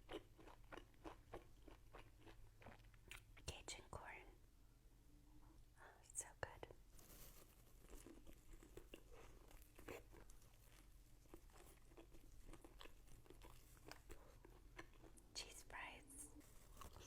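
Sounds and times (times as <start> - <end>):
person chewing crunchy food: 0.0 - 3.4, 7.6 - 15.3, 16.5 - 17.0.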